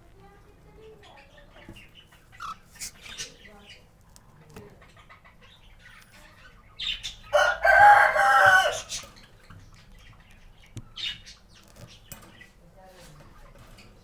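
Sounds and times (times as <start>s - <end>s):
faint bird chirps: 0.7s - 7.4s.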